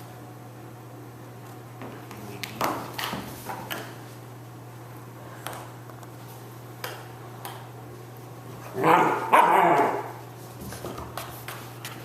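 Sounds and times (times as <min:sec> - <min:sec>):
puppy barking: 0:08.7 - 0:10.2.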